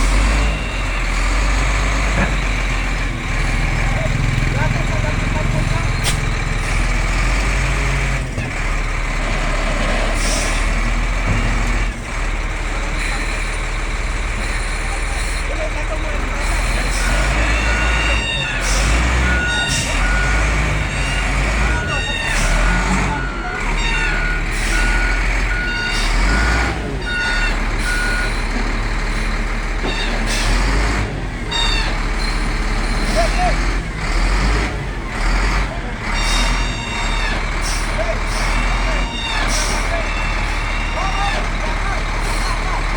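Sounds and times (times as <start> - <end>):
reversing alarm beeping: 0.0 - 8.0, 16.4 - 33.6, 36.0 - 42.9
diesel engine running hard: 0.0 - 42.9.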